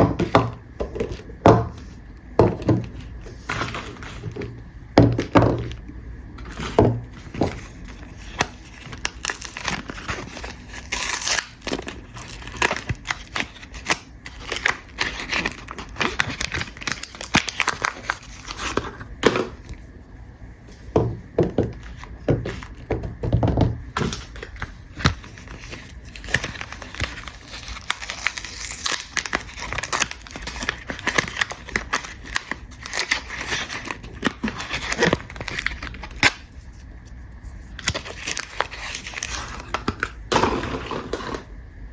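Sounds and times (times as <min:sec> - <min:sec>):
wrappers crinkling and tearing: 0:06.5 - 0:19.8, 0:24.0 - 0:40.2.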